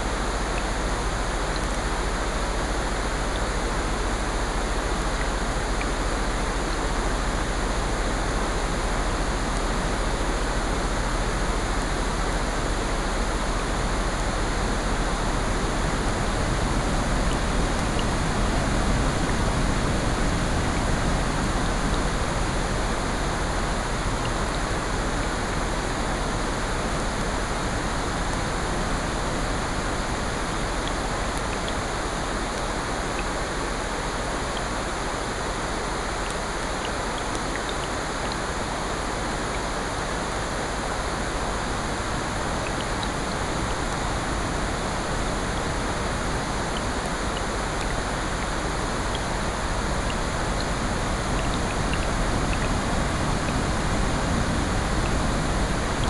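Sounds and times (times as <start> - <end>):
steady rain: 0.0 - 56.0
ocean surf: 41.4 - 56.0.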